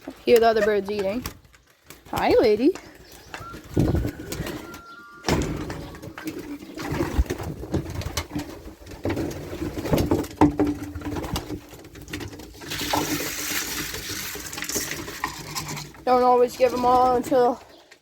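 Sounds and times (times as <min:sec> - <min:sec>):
pigeons cooing: 0:02.8 - 0:09.9.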